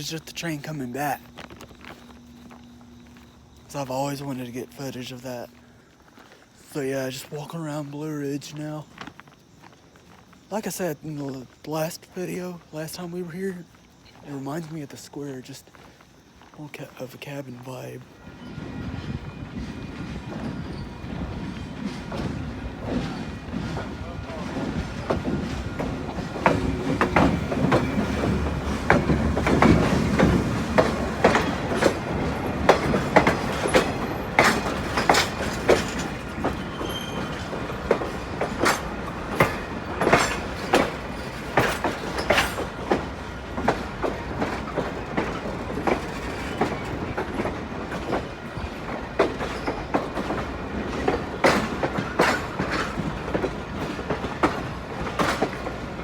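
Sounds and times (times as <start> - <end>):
low train rumble: 0.0 - 56.0
train wheels clacking on rails: 17.4 - 56.0.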